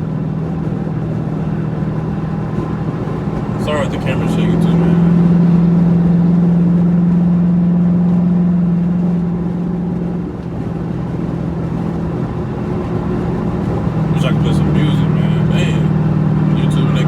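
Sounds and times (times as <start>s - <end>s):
car engine cruising: 0.0s - 17.0s
road and wind noise: 0.0s - 17.0s.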